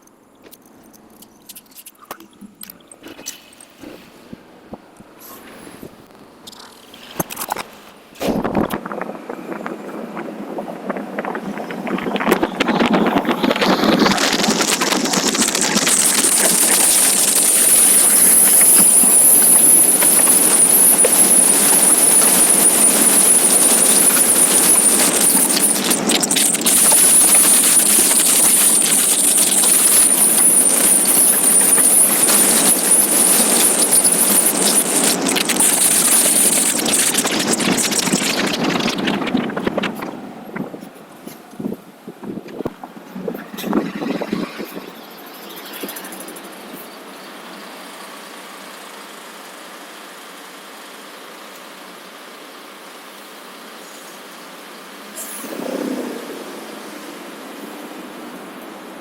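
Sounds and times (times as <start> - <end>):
thin high whine: 2.4 - 48.6
wind rush on microphone: 8.2 - 45.0.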